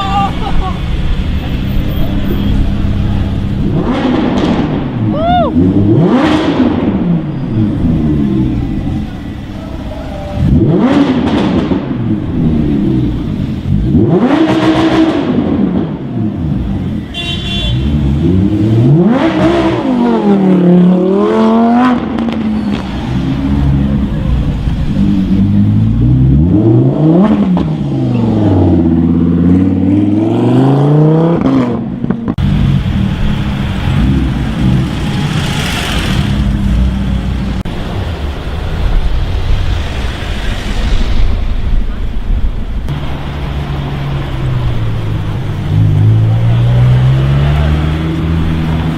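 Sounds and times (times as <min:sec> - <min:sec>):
car engine revving hard: 0:05.6 - 0:08.5, 0:10.4 - 0:16.8, 0:17.7 - 0:24.1, 0:24.8 - 0:37.6, 0:45.3 - 0:48.9
low engine rumble: 0:31.8 - 0:48.9.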